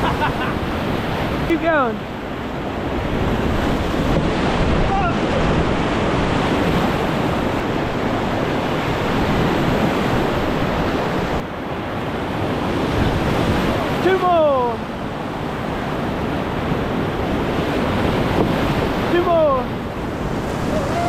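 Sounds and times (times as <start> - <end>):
wind buffeting microphone: 2.2 - 11.5, 15.0 - 21.0
river rapids rushing: 17.6 - 21.0.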